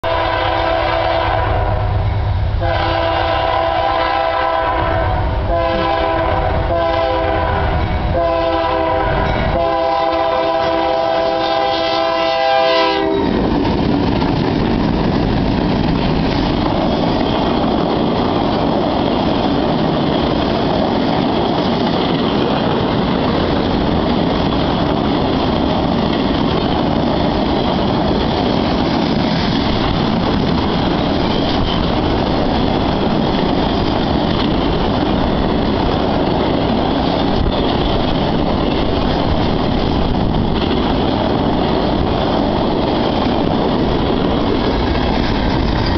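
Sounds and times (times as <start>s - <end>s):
locomotive air horn blasts: 0.0s - 2.0s, 2.6s - 13.4s
train wheels rumbling and clattering: 0.0s - 45.9s.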